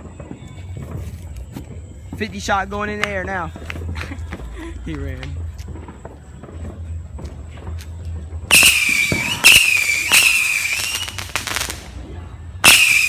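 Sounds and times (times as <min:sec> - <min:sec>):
firework whistles warbling: 0:00.0 - 0:02.5, 0:08.5 - 0:12.0, 0:12.6 - 0:13.0
firework shots cracking: 0:00.0 - 0:13.0.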